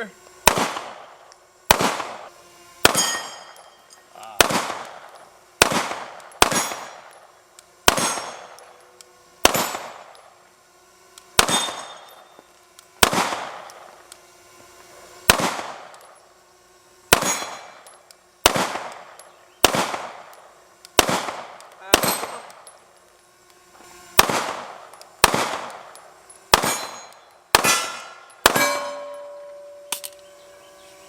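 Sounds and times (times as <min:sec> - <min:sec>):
pistol shots: 0:00.4 - 0:03.6, 0:04.4 - 0:07.2, 0:07.8 - 0:08.8, 0:09.4 - 0:10.3, 0:11.4 - 0:12.2, 0:13.0 - 0:13.9, 0:15.3 - 0:16.2, 0:17.1 - 0:22.8, 0:24.2 - 0:30.2.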